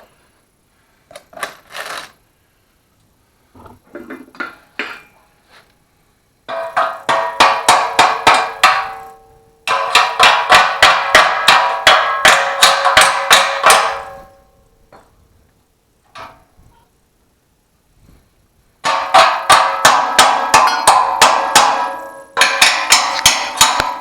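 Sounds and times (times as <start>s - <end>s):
hammer ringing on steel tubing: 6.5s - 14.6s, 18.8s - 24.0s.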